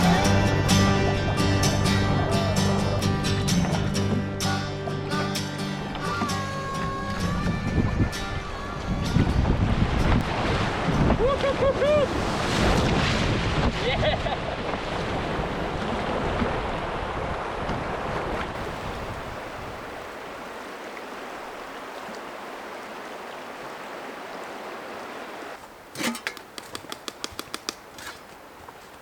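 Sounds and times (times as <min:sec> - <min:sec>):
river water rushing: 0:00.0 - 0:13.6, 0:14.4 - 0:29.0
sharp clicks and taps: 0:26.1 - 0:28.1.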